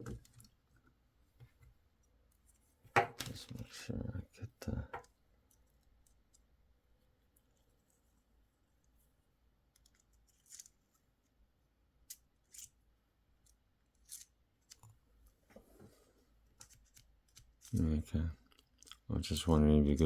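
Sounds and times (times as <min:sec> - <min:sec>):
small plastic parts clicking: 0:09.7 - 0:10.8, 0:12.0 - 0:12.8, 0:13.4 - 0:15.0, 0:16.5 - 0:17.8.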